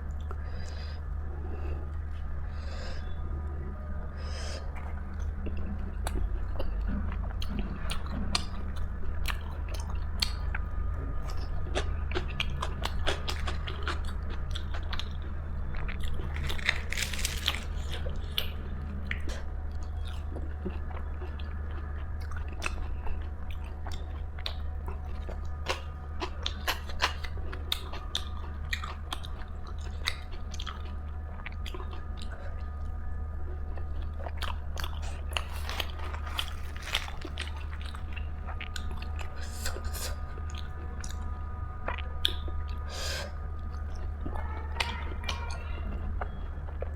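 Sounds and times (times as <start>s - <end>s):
low hum: 0.0s - 46.9s
person chewing crunchy food: 11.3s - 45.3s.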